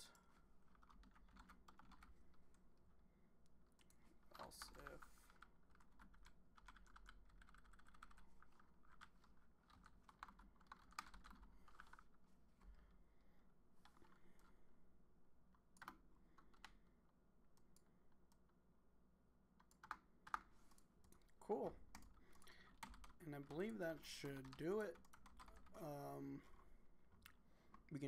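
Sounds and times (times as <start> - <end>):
typing on computer keyboard: 0.7 - 2.2, 3.8 - 12.1, 15.8 - 16.8, 19.6 - 21.3, 21.9 - 23.2, 24.1 - 25.9.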